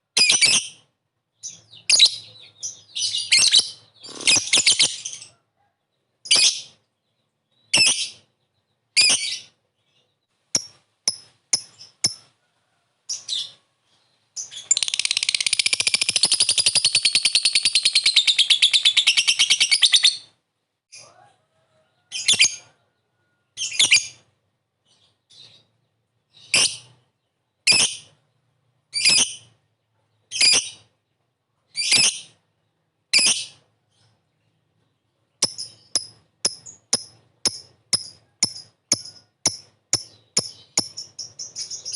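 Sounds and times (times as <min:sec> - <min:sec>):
lovebird chattering trill: 0:35.4 - 0:41.9.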